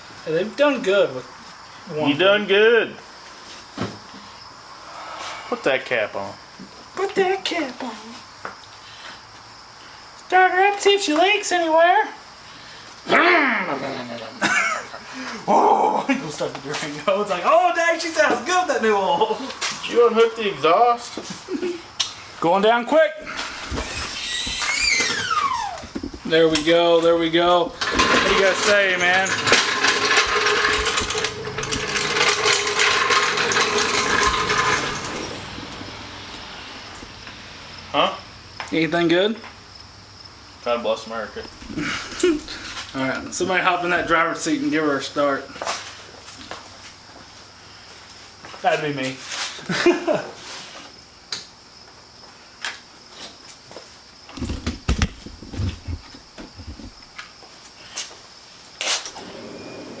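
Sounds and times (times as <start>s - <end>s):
knocks and thumps in car: 25.8s - 26.3s, 54.4s - 57.0s
rapid mechanical clicking: 27.8s - 35.3s.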